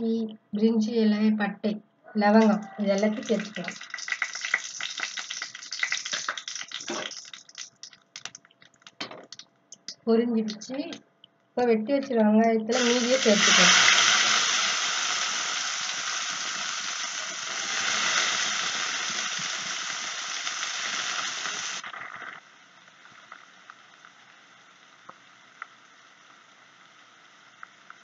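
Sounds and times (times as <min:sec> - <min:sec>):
onions sizzling in hot oil: 0:03.0 - 0:08.4, 0:12.7 - 0:28.0.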